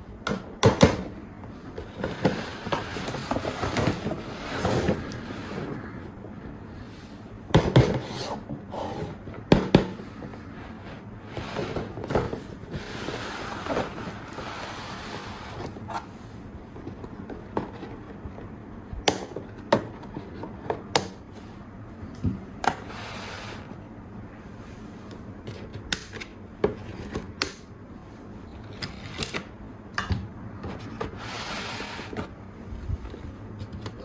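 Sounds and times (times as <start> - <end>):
toys rubbing: 10.5 - 16.2, 30.9 - 32.3.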